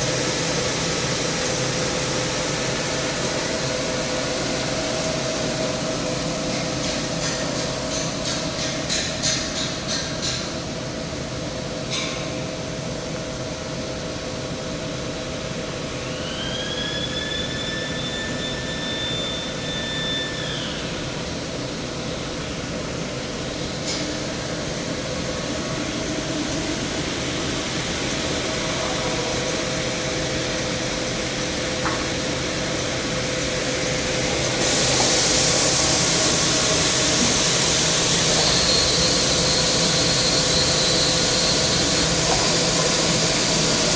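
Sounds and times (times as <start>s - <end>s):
machine whine: 12.9s - 43.9s
sanding machine humming: 24.4s - 43.9s.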